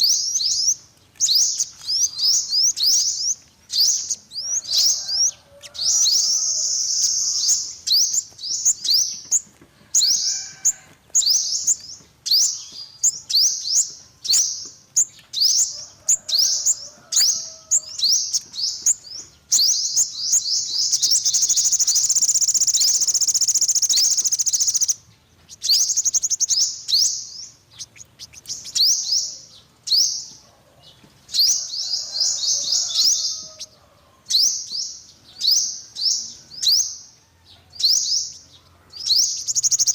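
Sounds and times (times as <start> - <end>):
sunbird high thin chirps: 0.0 - 9.4, 10.0 - 30.4, 39.1 - 39.9
bird twittering trill: 0.0 - 30.4, 31.3 - 37.1, 37.7 - 39.9.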